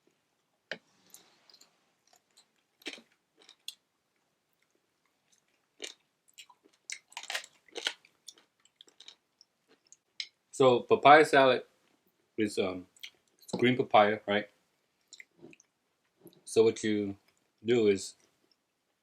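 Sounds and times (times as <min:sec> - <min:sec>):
person chewing and crunching: 0:01.0 - 0:03.8, 0:04.5 - 0:10.3.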